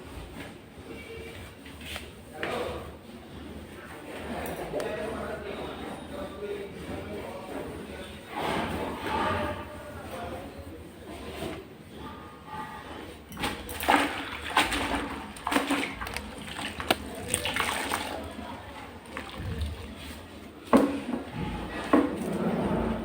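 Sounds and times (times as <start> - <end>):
water sloshing and splashing: 13.3 - 23.0.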